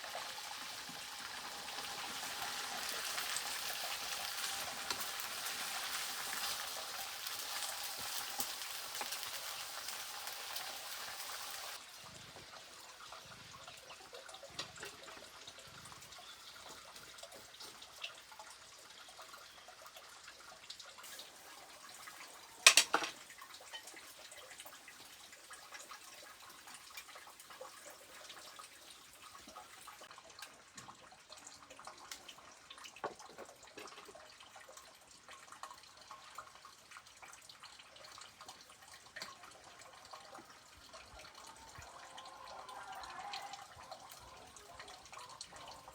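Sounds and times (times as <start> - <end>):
fish sizzling in a pan: 0.0 - 30.1.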